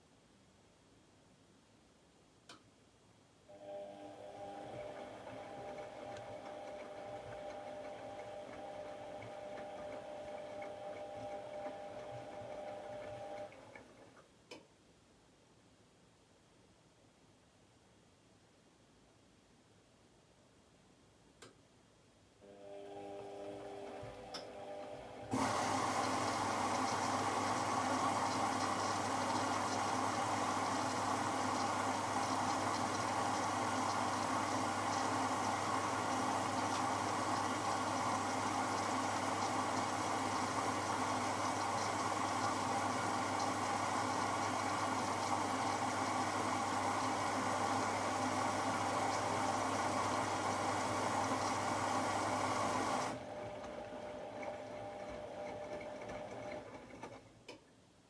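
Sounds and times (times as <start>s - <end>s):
water rushing in washing machine: 4.1s - 13.9s, 22.9s - 57.1s.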